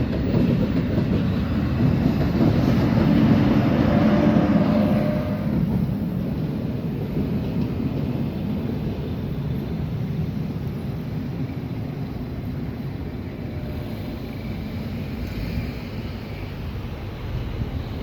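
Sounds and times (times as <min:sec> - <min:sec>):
passing train rumble: 0:00.0 - 0:18.0.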